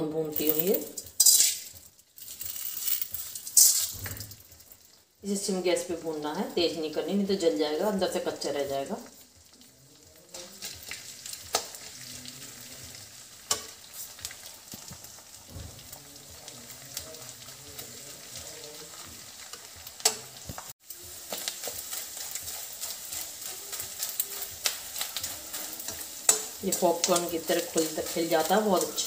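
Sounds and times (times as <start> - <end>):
gum sizzling in ghee: 0.0 - 29.0
metal spatula scraping pan: 1.0 - 1.8, 21.3 - 29.0.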